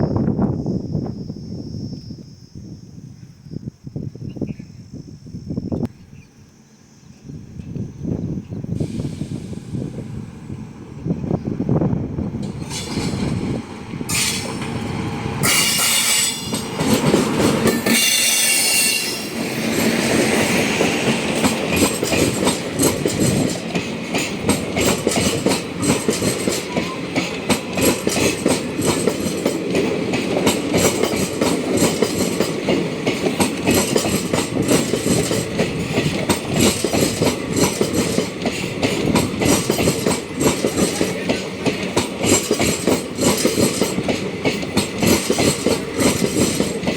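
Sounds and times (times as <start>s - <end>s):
train wheels clickety-clack: 12.3s - 46.9s.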